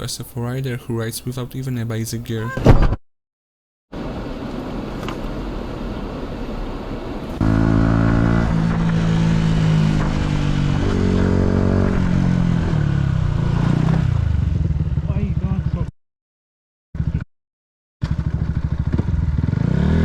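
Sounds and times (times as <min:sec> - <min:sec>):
wind and road noise: 0:03.9 - 0:15.9, 0:18.0 - 0:20.0
motorcycle engine running: 0:07.3 - 0:15.9, 0:17.0 - 0:17.2, 0:18.0 - 0:20.0.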